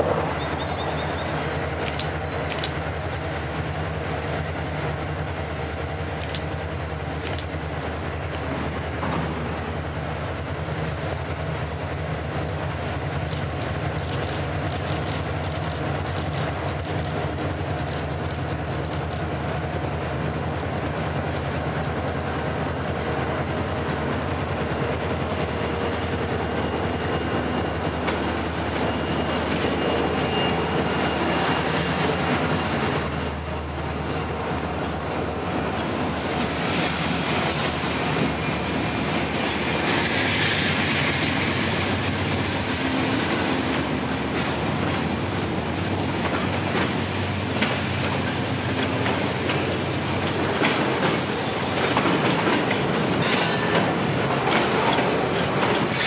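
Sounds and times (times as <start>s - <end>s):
train wheels rumbling on rails: 0.0s - 56.0s
high wheel squeals: 22.8s - 43.8s, 45.1s - 56.0s.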